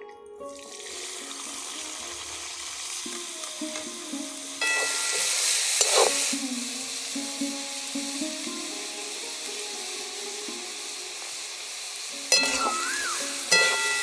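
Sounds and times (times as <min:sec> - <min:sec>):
vegetables sizzling in hot oil: 0:00.6 - 0:14.0
metal spoon scraping a pan: 0:04.6 - 0:06.3.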